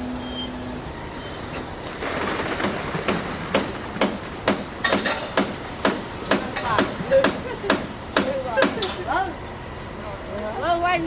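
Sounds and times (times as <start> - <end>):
site machinery noise: 0.0 - 11.0
hammer blows: 2.1 - 9.0.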